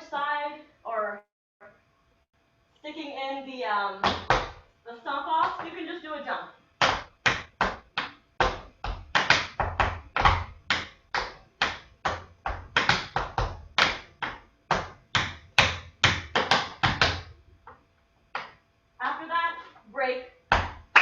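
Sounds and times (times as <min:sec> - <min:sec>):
tap shoes on hard floor: 0:04.0 - 0:04.6, 0:05.4 - 0:05.8, 0:06.8 - 0:17.8, 0:18.4 - 0:18.6.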